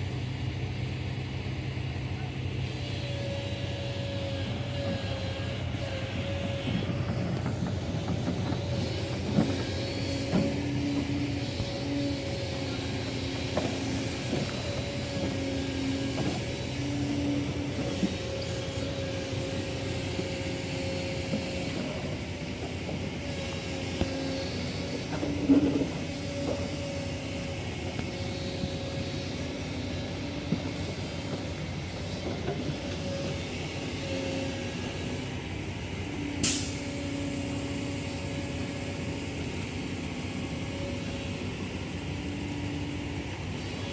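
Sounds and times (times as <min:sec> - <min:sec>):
heavy diesel engine droning: 0:00.0 - 0:43.9
sharp hiss: 0:36.4 - 0:39.4.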